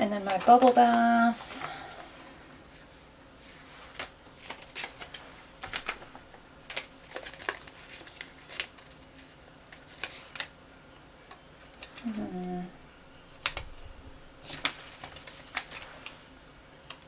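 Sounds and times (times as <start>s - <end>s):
sticker sheets clicking and crinkling: 4.0s - 10.5s, 14.4s - 16.2s.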